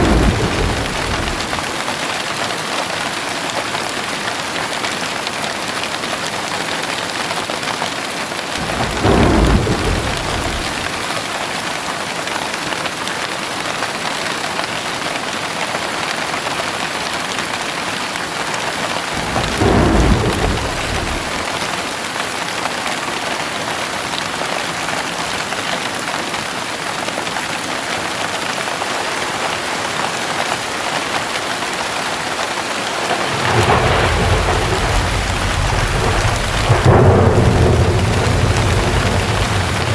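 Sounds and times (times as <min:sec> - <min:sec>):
thunder rolling: 0:00.0 - 0:02.2, 0:08.6 - 0:11.3, 0:19.1 - 0:21.9, 0:32.8 - 0:39.9
heavy rain: 0:00.0 - 0:39.9.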